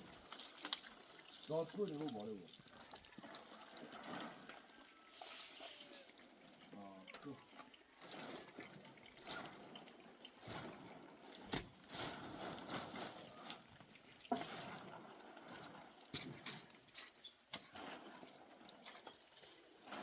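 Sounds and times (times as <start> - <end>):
liquid splashing and trickling: 0.0 - 20.0.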